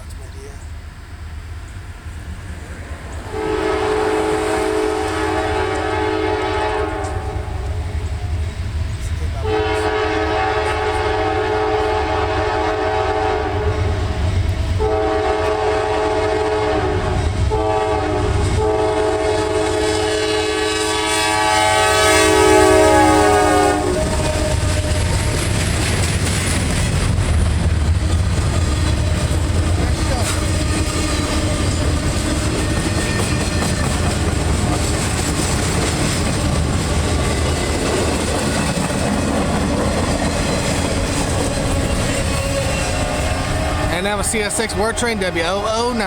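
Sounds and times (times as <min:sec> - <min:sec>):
locomotive and wheels rumbling past: 0:00.0 - 0:46.0
locomotive air horn blasts: 0:03.3 - 0:07.9, 0:09.4 - 0:14.1, 0:14.8 - 0:25.1, 0:41.6 - 0:45.1.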